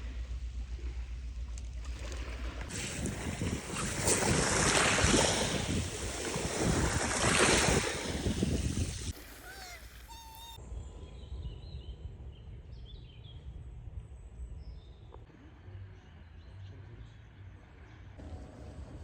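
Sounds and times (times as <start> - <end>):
low outdoor rumble: 0.0 - 19.0
faint bird chirps: 9.2 - 12.0.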